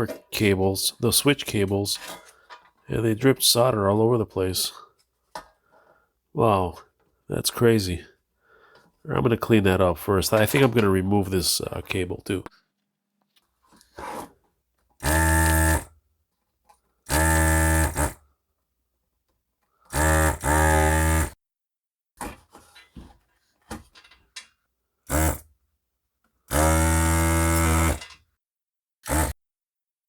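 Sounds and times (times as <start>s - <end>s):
vacuum pump buzzing: 15.0s - 15.9s, 17.1s - 18.2s, 19.9s - 21.4s, 25.1s - 25.4s, 26.5s - 28.0s, 29.0s - 29.4s.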